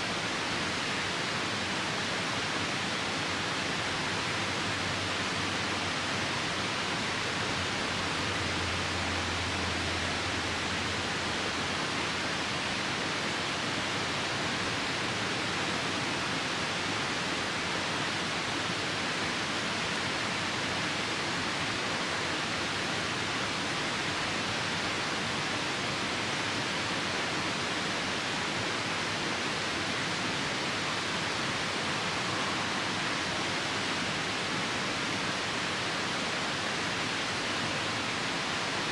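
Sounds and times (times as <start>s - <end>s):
rain: 0.0s - 38.9s
river rushing: 0.0s - 38.9s.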